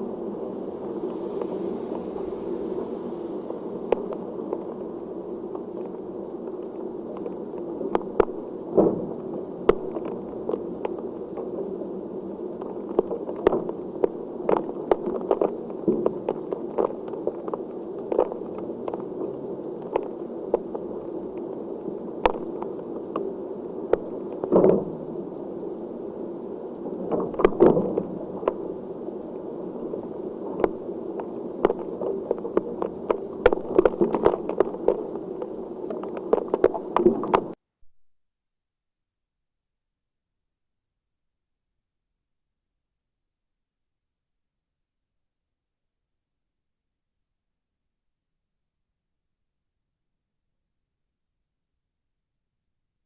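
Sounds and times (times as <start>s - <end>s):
heavy rain falling: 0.5s - 37.6s.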